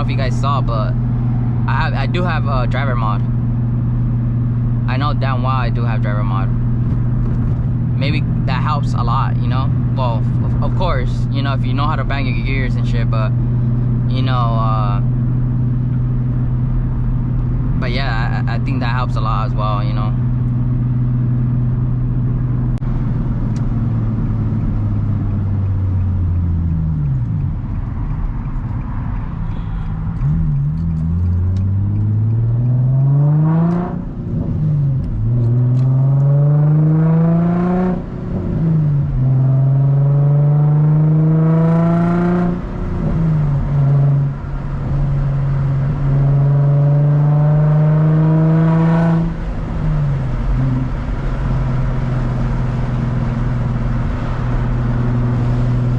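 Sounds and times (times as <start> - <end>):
car engine accelerating through gears: 20.1 - 55.9.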